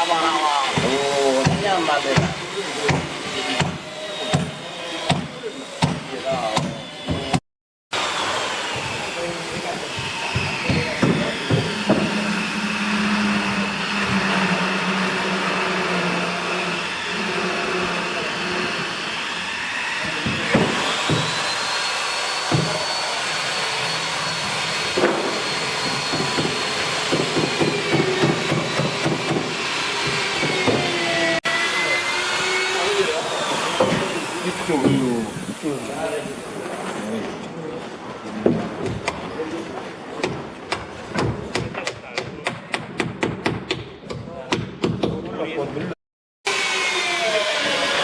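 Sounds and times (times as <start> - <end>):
electric power tool whining: 8.0 - 37.0, 46.5 - 48.0.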